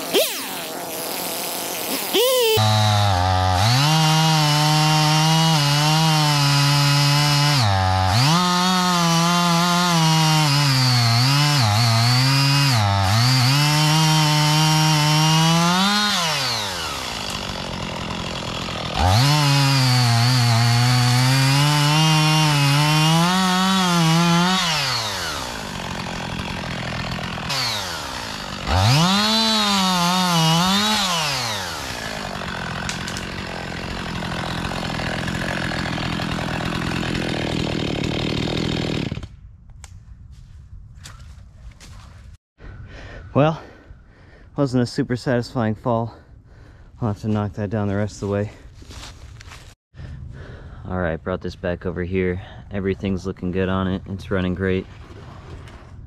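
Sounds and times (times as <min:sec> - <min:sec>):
chainsaw cutting wood: 0:00.0 - 0:39.5.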